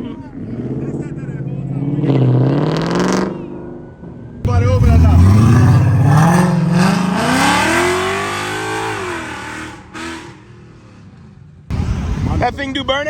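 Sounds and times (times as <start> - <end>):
car engine accelerating: 4.4 - 11.1.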